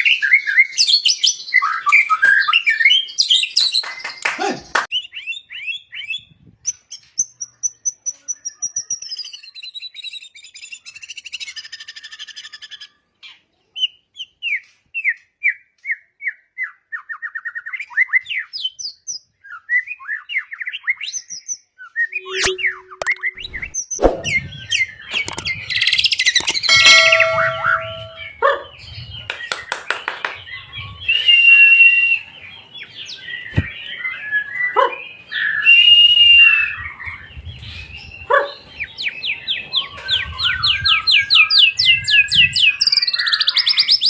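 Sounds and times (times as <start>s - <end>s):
bird singing whistling song: 14.5s - 28.3s, 30.5s - 32.4s, 33.1s - 38.3s, 39.0s - 44.0s.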